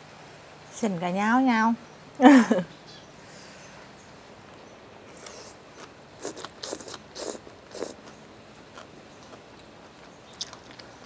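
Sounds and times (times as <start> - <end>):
wet chewing noises: 5.1 - 11.0.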